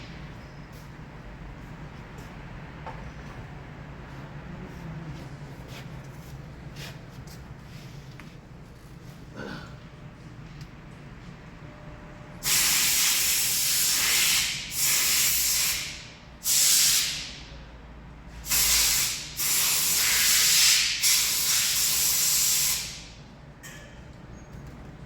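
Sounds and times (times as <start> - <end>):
pressurised spray hissing: 12.4 - 17.3, 18.4 - 23.1.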